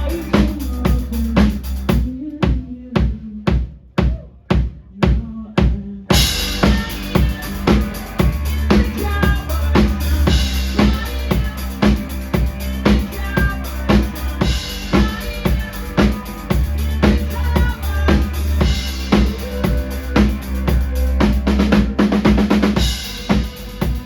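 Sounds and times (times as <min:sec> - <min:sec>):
drum kit beat: 0:00.0 - 0:24.0
rock band playing: 0:06.1 - 0:24.0.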